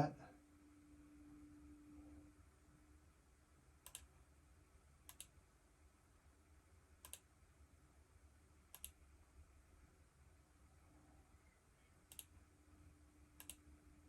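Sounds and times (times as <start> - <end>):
computer mouse double-clicks: 3.8 - 4.1, 5.1 - 5.4, 7.0 - 7.3, 8.7 - 9.0, 12.1 - 12.3, 13.4 - 13.6.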